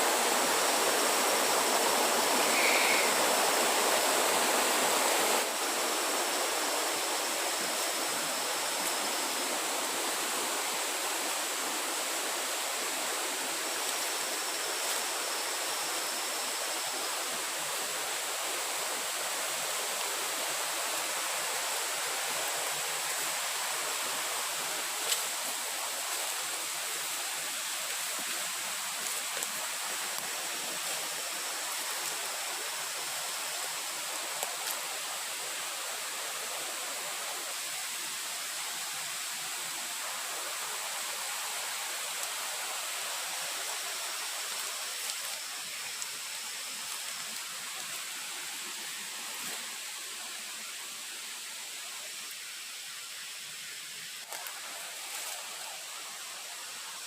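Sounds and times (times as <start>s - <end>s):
faint high steady tone: 0.5s - 4.4s.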